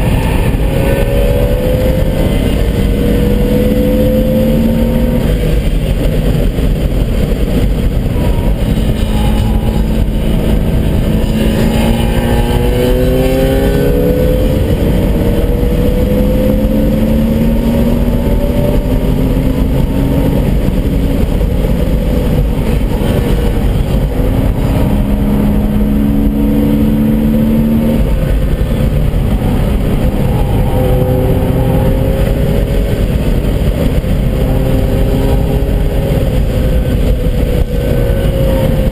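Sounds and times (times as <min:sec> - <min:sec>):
car engine running hard: 0:00.0 - 0:38.9.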